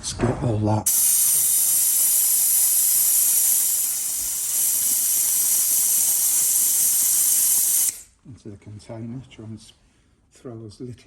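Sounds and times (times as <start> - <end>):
pressurized air or spray hissing: 0.9 - 8.1.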